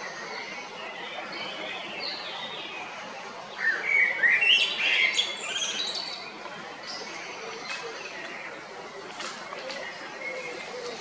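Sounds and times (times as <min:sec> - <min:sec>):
blackbird singing: 0:03.6 - 0:08.2.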